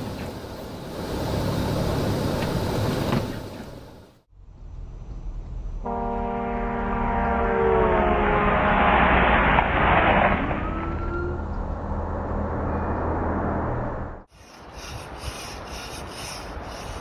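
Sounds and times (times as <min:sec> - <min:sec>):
multi-tone vehicle horn: 0:05.8 - 0:08.8
passing vehicle rushing: 0:07.8 - 0:14.3.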